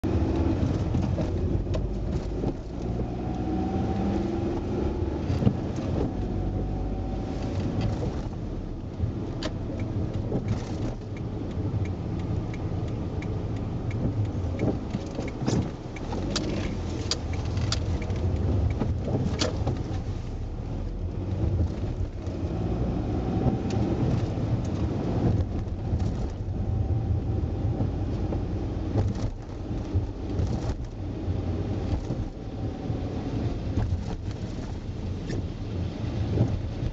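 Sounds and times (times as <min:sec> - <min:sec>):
car engine and road rumble: 0:00.0 - 0:36.9
light evenly spaced ticks: 0:09.7 - 0:18.8.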